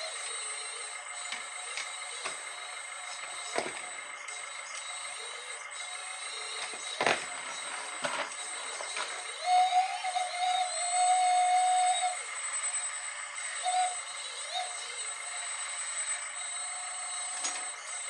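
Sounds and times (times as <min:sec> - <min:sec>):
electric hydraulic pump whine: 0:00.0 - 0:18.0.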